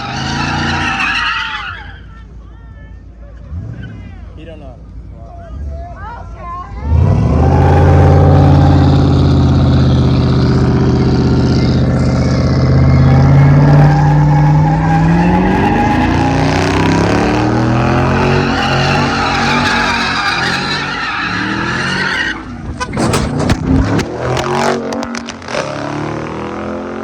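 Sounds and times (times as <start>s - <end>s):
tyres squealing: 0.0s - 2.2s, 10.9s - 25.5s
car engine at high revs: 6.8s - 27.0s.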